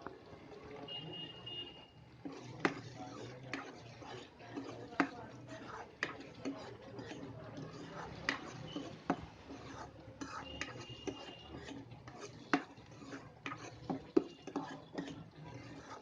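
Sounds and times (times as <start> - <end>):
spoon scraping cooking pan: 0.0 - 16.0.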